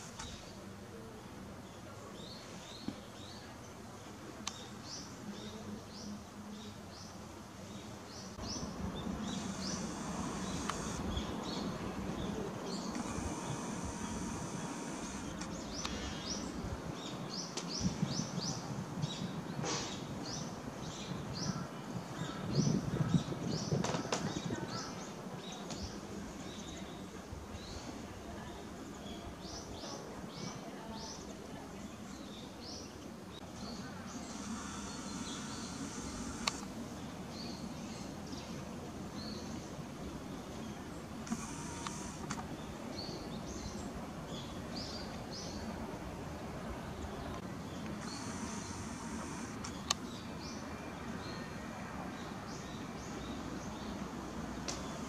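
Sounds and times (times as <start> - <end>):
outdoor background noise: 0.0 - 55.0
small birds chirping: 0.0 - 55.0
small bird chirping: 8.2 - 16.5, 33.4 - 36.6
sharp click: 36.4 - 36.7.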